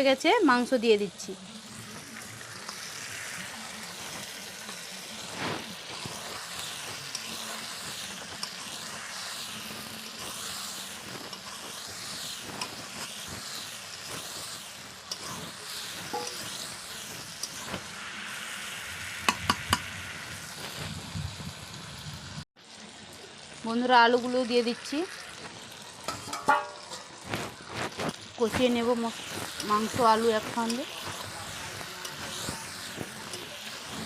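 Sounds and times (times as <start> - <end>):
chicken sizzling in oil: 0.0 - 34.0
stirring scraping and clicks: 10.2 - 15.3, 25.4 - 34.0.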